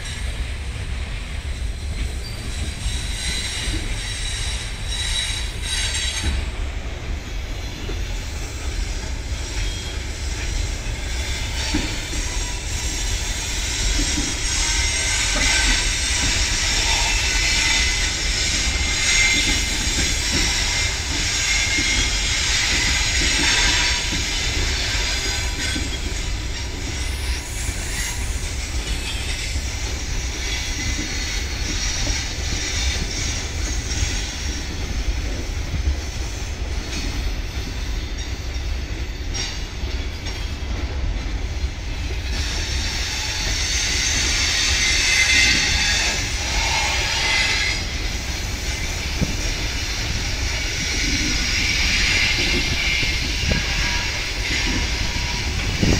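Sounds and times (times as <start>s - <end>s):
train wheels rumbling on rails: 0.0s - 55.9s
high-pitched wheel squeal: 2.1s - 6.4s, 9.0s - 34.6s, 42.2s - 55.9s.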